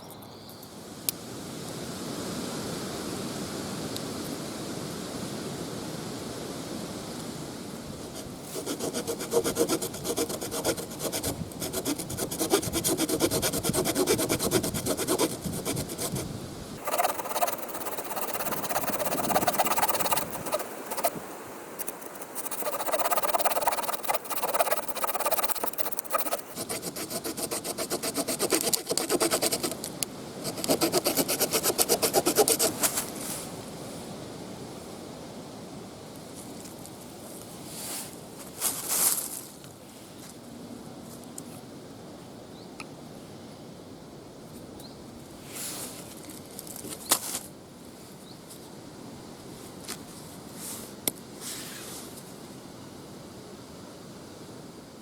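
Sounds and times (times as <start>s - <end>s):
steady noise: 8.1s - 29.7s
saw cutting through wood: 8.5s - 16.2s, 16.8s - 29.7s, 30.5s - 32.8s.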